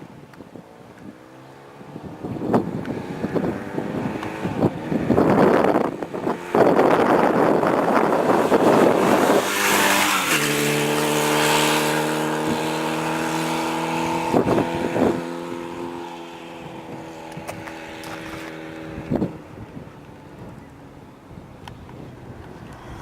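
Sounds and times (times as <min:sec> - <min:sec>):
motorcycle engine running: 0:02.0 - 0:19.8.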